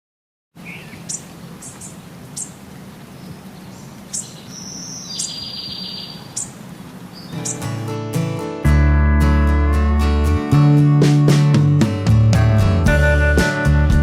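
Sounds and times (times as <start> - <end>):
buzzy bird trill: 0.6 - 7.9
birds chirping: 0.6 - 8.1.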